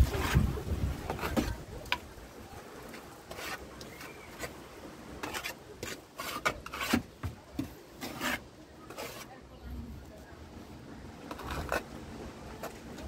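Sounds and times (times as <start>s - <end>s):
hand tool scraping rough masonry: 0.0s - 2.0s, 2.8s - 9.4s, 11.3s - 13.0s.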